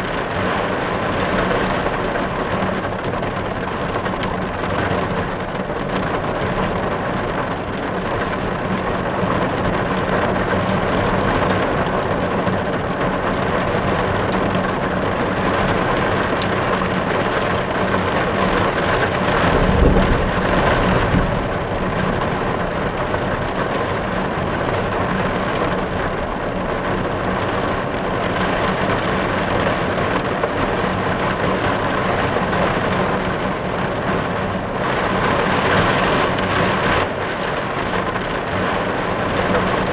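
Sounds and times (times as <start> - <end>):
rain drumming on a car roof: 0.0 - 39.9
low rumble: 18.8 - 25.0.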